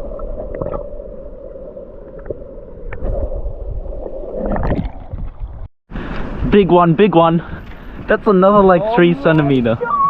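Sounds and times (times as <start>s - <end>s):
muffled creek water: 0.0s - 10.0s.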